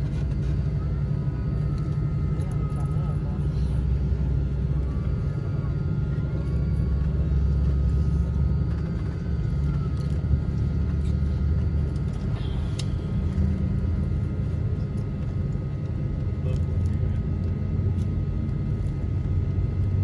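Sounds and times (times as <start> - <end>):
jet engines rumbling: 0.0 - 16.4
faint steady whine: 0.0 - 20.0.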